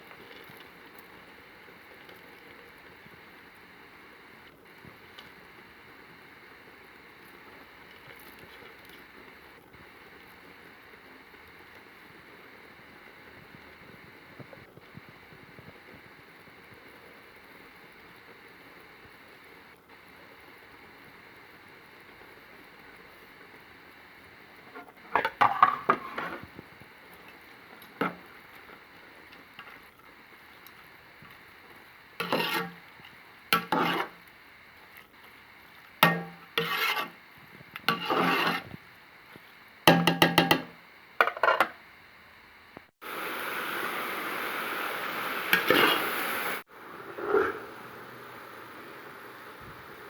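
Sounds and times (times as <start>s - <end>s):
steady hiss: 0.0s - 50.0s
spoon scraping a cooking pot: 24.7s - 26.5s, 27.1s - 29.9s, 32.2s - 34.3s, 36.0s - 37.2s, 37.8s - 38.8s, 45.5s - 46.1s.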